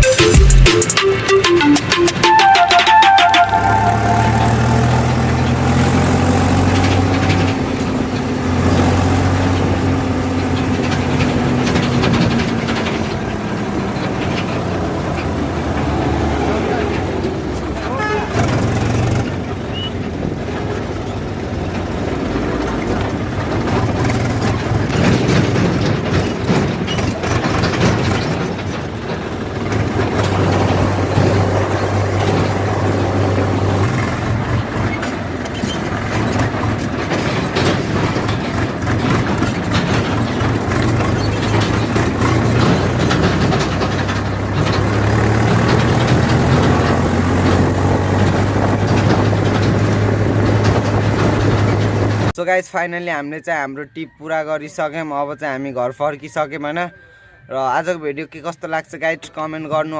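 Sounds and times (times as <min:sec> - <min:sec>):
tractor engine running: 0:00.0 - 0:52.4
knocks and rattles: 0:05.0 - 0:52.4.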